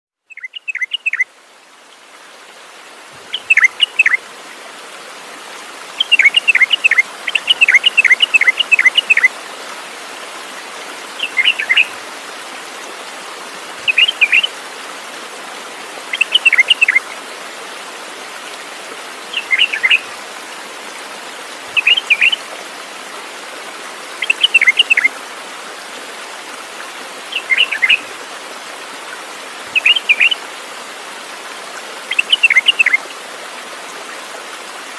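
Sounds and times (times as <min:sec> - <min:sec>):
bird chirping: 0:00.3 - 0:01.2, 0:03.3 - 0:04.2, 0:11.2 - 0:11.9, 0:27.4 - 0:28.0.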